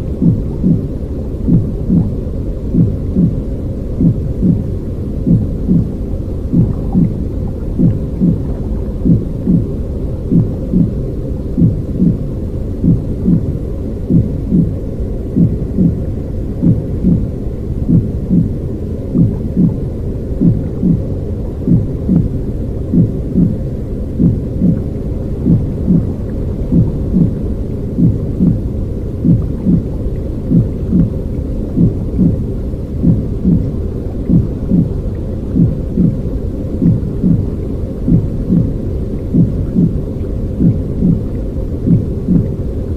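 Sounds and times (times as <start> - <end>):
muffled rushing noise: 0.0 - 42.9
soft heartbeat pulse: 0.0 - 42.9.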